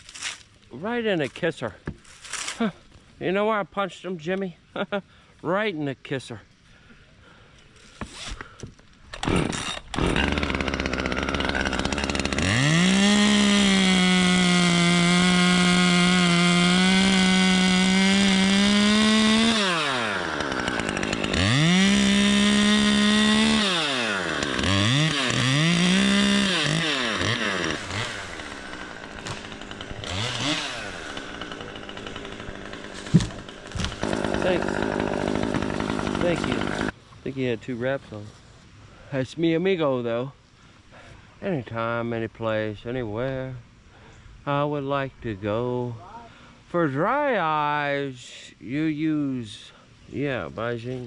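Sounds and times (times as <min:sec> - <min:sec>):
chainsaw revving and idling: 0:09.2 - 0:37.0.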